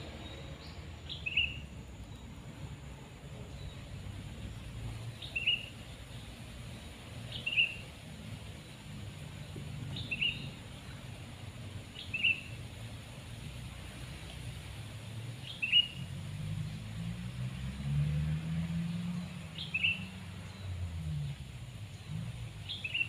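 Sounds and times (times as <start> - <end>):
bird chirping: 0.0 - 2.3, 3.5 - 7.9, 9.4 - 11.0, 11.9 - 12.6, 15.4 - 16.8, 18.8 - 23.0.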